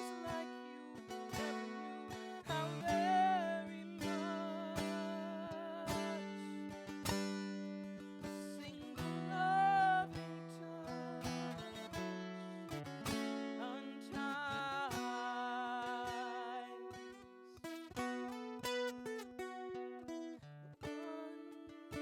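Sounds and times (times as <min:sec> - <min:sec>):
acoustic guitar chords strummed: 0:00.0 - 0:22.0.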